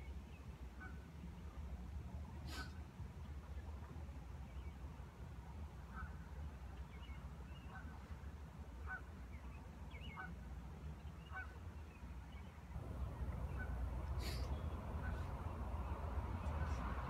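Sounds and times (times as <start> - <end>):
bird calling: 12.8 - 16.8
steady low rumble: 12.8 - 17.0.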